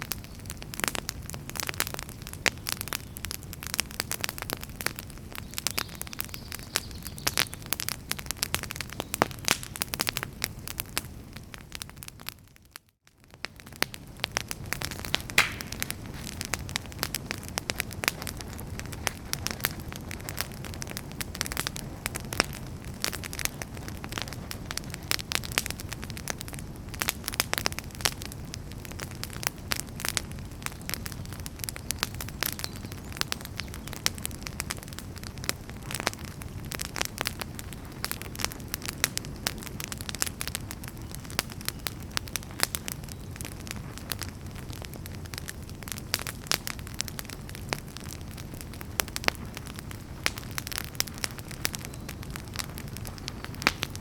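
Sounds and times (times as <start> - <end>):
low rumble of burning: 0.0 - 54.0
wood fire crackling: 0.0 - 54.0
sharp pops and snaps: 4.5 - 10.2, 13.4 - 17.2, 49.0 - 54.0.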